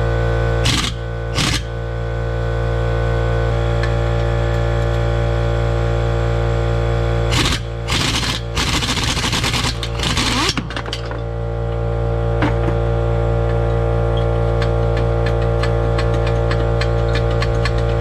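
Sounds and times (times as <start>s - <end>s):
low machine hum with ticking: 0.0s - 18.0s
impact wrench rattling: 0.6s - 1.7s, 7.3s - 11.2s, 14.6s - 18.0s.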